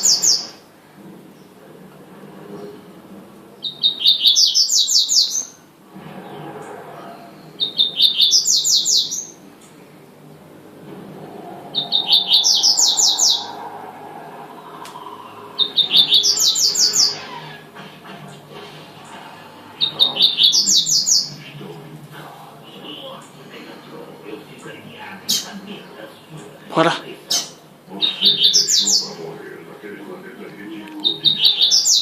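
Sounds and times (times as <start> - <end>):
bird singing high notes: 10.5 - 17.6.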